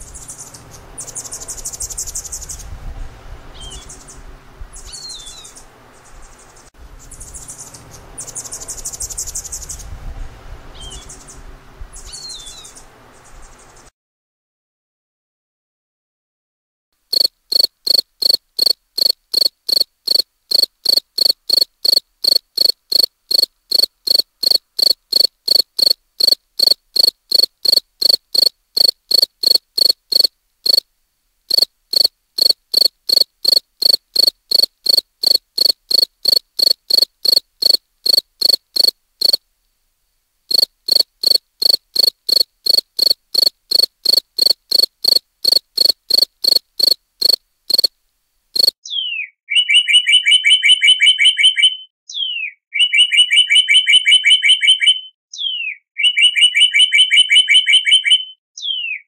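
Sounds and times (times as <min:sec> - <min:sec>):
cricket chirping: 0:17.0 - 0:30.9, 0:31.5 - 0:39.4, 0:40.5 - 0:48.0, 0:48.6 - 0:48.8.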